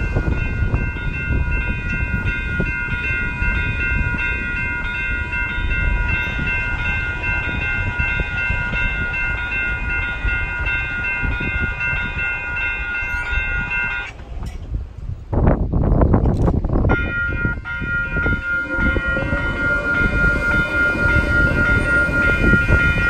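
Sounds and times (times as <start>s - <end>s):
train rumble: 0.0s - 23.0s
high steady multi-note tone: 16.9s - 23.0s.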